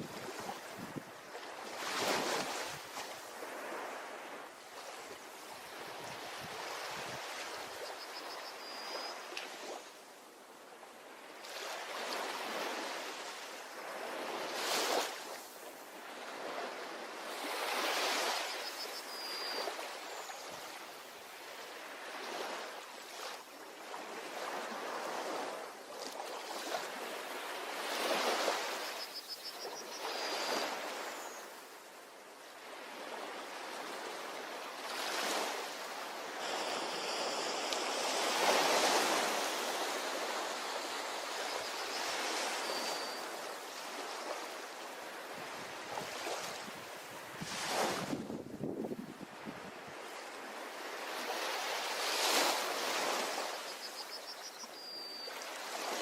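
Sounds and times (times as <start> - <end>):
surf washing onto beach: 33.4 - 53.6.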